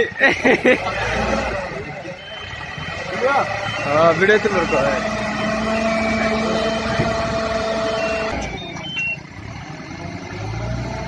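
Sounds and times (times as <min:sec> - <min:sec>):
concrete mixer running: 0:00.9 - 0:08.7
steady warning tone: 0:01.7 - 0:09.2.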